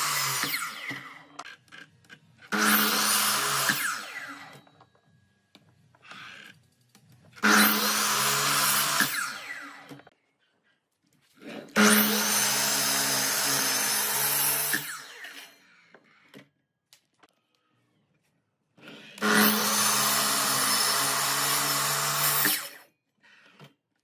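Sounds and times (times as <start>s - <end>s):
small power tool motor: 0.0s - 1.8s, 2.4s - 4.7s, 7.4s - 10.0s, 11.8s - 15.9s, 19.2s - 22.9s.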